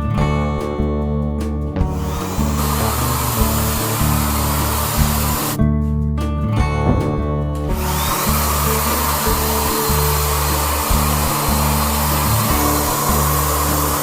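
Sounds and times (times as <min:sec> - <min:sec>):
background music: 0:00.0 - 0:14.0
motorised tool rushing noise: 0:01.9 - 0:05.6, 0:06.8 - 0:14.0.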